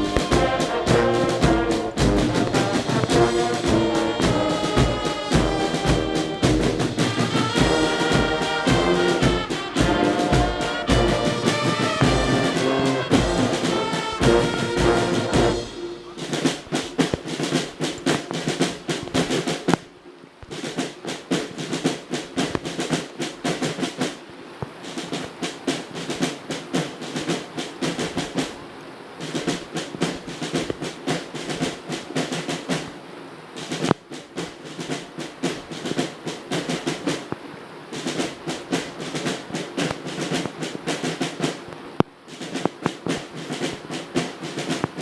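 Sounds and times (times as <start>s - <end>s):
brass band playing: 0.0s - 17.9s
snare drum rolls: 0.0s - 45.0s.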